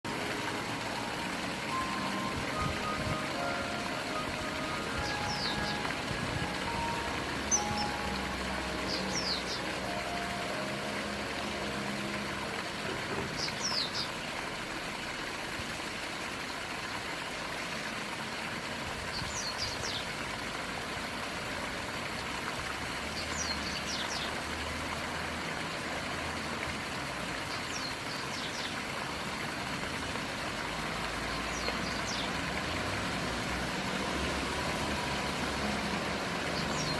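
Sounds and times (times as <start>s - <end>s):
kingfisher calling: 0.1s - 11.0s.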